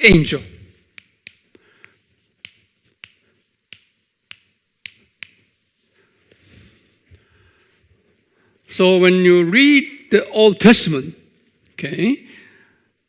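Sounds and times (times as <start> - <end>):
soft faint rustle: 5.3 - 8.3.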